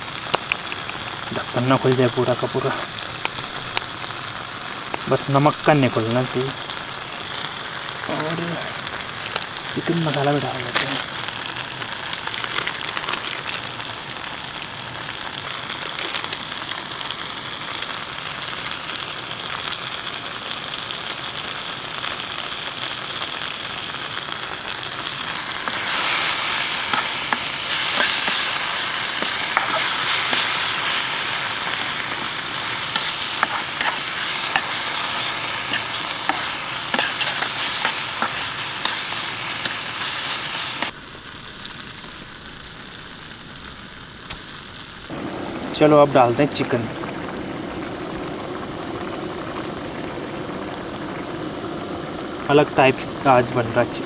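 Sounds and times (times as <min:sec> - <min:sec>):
masala sizzling in a pan: 0:00.0 - 0:54.0
spatula scraping a pan: 0:25.6 - 0:30.9, 0:32.9 - 0:40.1.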